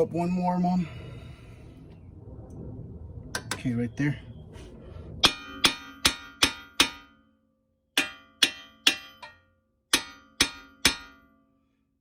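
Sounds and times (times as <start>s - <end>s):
hammer striking steel: 5.2s - 11.6s.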